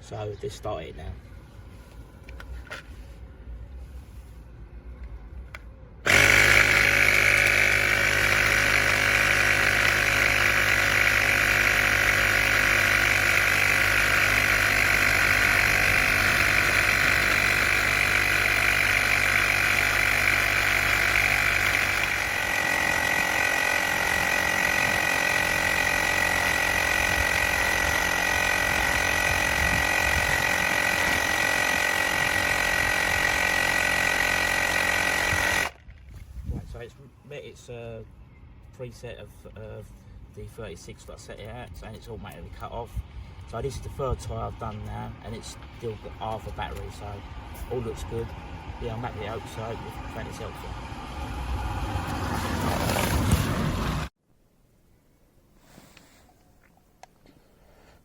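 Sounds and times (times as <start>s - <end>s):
small air compressor running: 6.0s - 35.8s.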